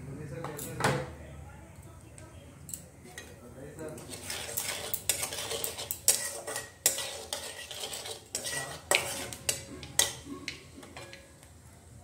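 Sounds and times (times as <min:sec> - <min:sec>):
spatula scraping a metal pan: 0:04.0 - 0:10.2
oil sizzling: 0:04.0 - 0:11.7.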